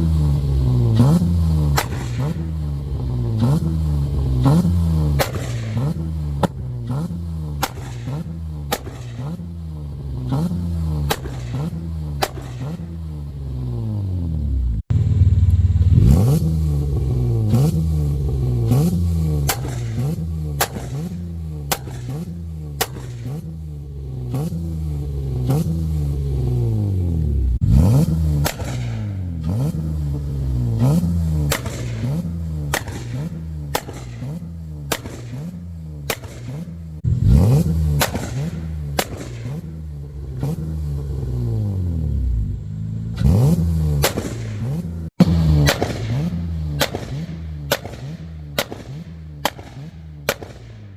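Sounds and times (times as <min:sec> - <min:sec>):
car engine revving: 0:00.0 - 0:50.9
exhaust cracks and pops: 0:01.7 - 0:02.5, 0:07.6 - 0:09.5, 0:11.0 - 0:13.0, 0:19.4 - 0:23.5, 0:28.4 - 0:29.7, 0:31.4 - 0:36.8, 0:37.9 - 0:39.8, 0:44.0 - 0:50.8.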